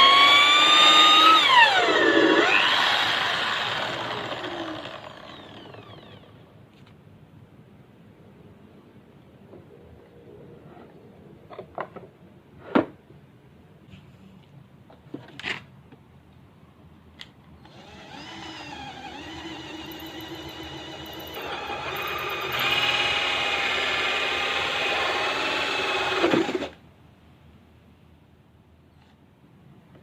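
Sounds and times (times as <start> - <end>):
electric drill whining: 0.0 - 6.4, 17.6 - 26.8.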